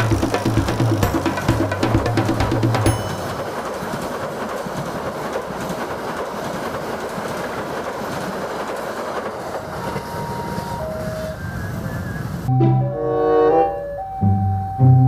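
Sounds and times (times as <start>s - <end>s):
train wheels clacking on rail joints: 0.0s - 12.0s
train rumble: 0.0s - 15.0s.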